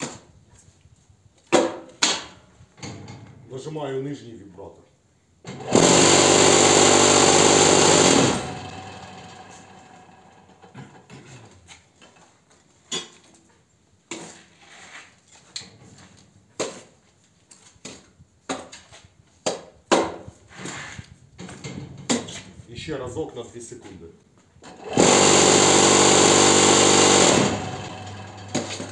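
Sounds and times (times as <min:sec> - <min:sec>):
machine vibrator rattling buzz: 0:05.5 - 0:10.7, 0:24.8 - 0:28.9
short knocks and scrapes: 0:10.7 - 0:17.0, 0:17.7 - 0:22.6.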